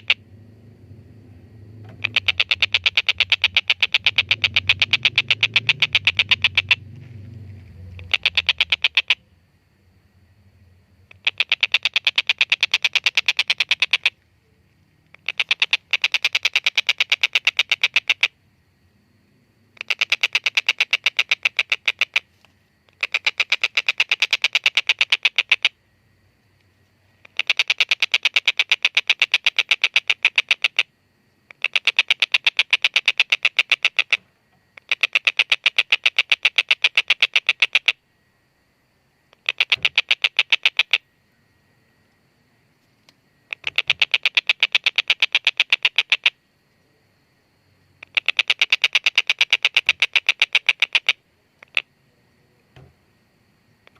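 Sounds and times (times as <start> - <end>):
kingfisher calling kek-kek-kek: 1.9 - 6.9, 7.8 - 9.2, 11.1 - 14.2, 15.1 - 18.3, 39.4 - 41.0, 43.5 - 46.4, 48.0 - 51.9.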